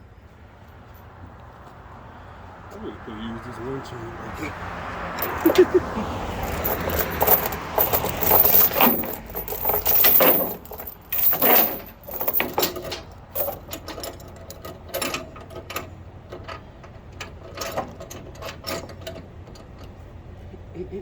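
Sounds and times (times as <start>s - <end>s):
metal chain rattling: 5.2s - 5.7s, 6.3s - 15.2s.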